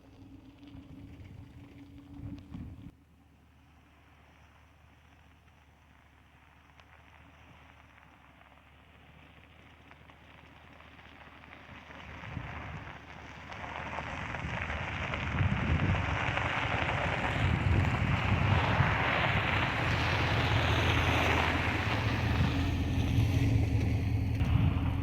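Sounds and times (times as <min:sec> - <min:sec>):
truck engine hum: 0:00.0 - 0:08.2, 0:08.8 - 0:25.0
road noise: 0:00.0 - 0:25.0
wind on microphone: 0:14.2 - 0:23.3, 0:24.4 - 0:25.0.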